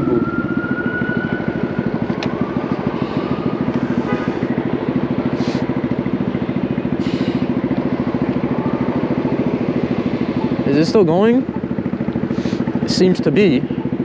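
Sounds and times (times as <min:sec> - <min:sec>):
short hisses: 0:07.0 - 0:07.5, 0:12.3 - 0:12.7.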